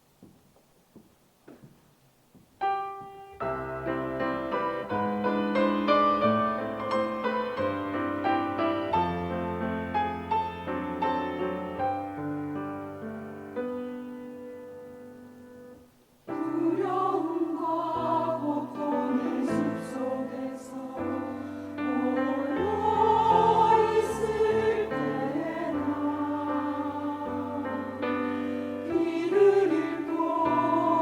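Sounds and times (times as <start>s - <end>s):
piano accompaniment: 2.5s - 31.0s
choir singing: 16.3s - 31.0s.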